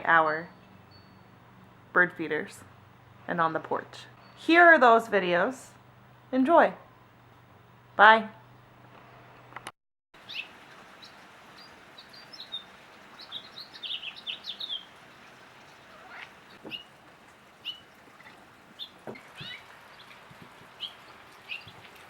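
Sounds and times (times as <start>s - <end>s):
faint outdoor hiss: 0.0s - 22.0s
small birds chirping: 10.2s - 22.0s.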